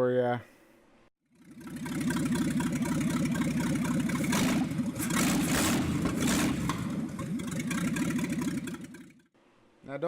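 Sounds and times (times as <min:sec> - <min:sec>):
truck engine running roughly: 0:01.3 - 0:09.3.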